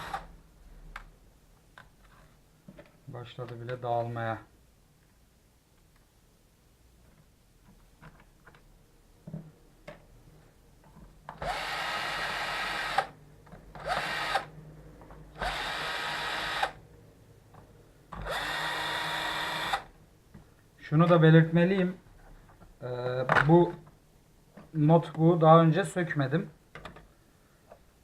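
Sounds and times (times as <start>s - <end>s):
electric screwdriver whining: 0.0s - 0.3s, 11.4s - 13.2s, 13.8s - 14.5s, 15.4s - 16.8s, 18.2s - 19.9s.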